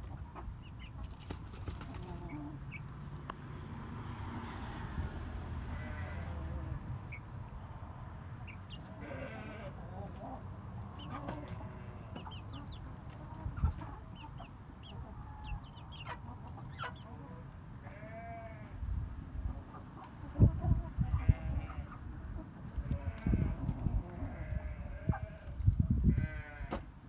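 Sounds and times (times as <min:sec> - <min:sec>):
chickens clucking: 0:00.0 - 0:03.4, 0:08.2 - 0:18.1, 0:18.7 - 0:26.9.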